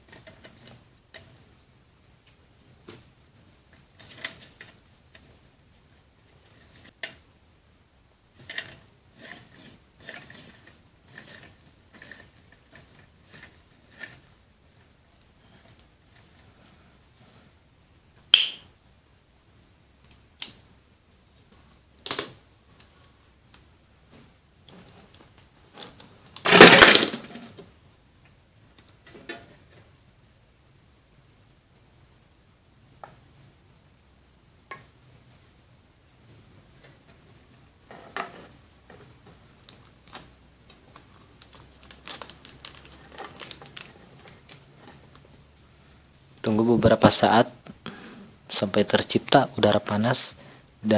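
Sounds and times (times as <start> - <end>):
small hard parts clicking: 8.4 - 16.5, 24.6 - 29.5, 37.9 - 45.3.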